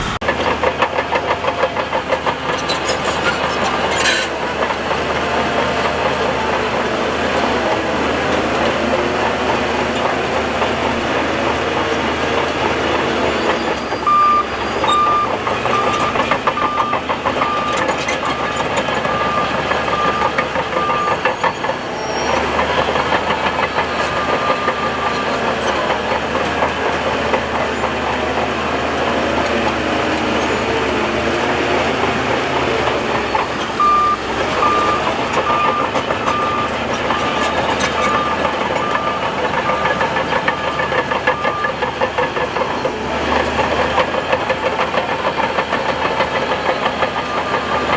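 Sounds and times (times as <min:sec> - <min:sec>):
heavy diesel engine running: 0:00.0 - 0:47.9
reversing alarm beeping: 0:13.2 - 0:25.2, 0:33.1 - 0:42.8.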